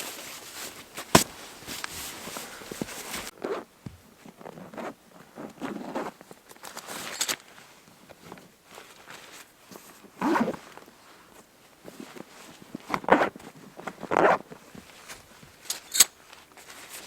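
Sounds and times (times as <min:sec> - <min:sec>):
rustling scraping handling noises: 0:00.0 - 0:03.3.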